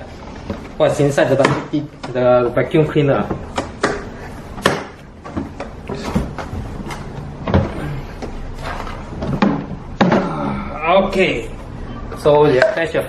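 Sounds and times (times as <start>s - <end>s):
plastic knocks and scraping: 0.2s - 10.3s.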